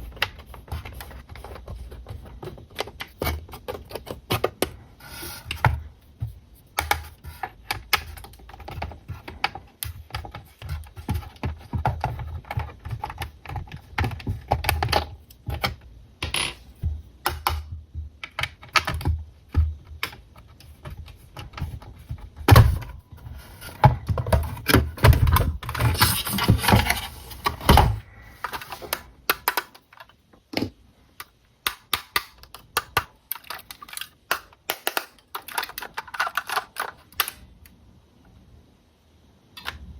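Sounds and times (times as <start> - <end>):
clicks and taps of handling toy: 28.4 - 37.4.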